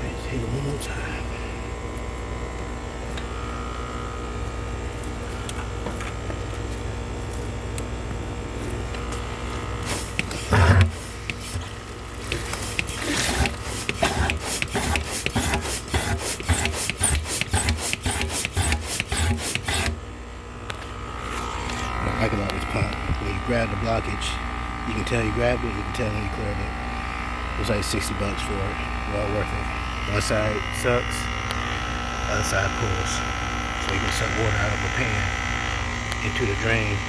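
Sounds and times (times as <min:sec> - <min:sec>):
steady hum: 0:00.0 - 0:37.0
hand pump strokes: 0:09.8 - 0:20.0.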